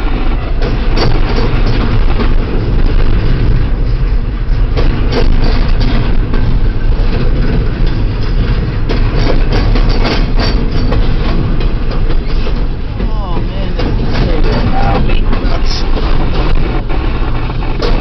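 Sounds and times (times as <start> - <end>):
train wheels rumbling on rails: 0.0 - 18.0
clanks and clicks: 0.2 - 18.0.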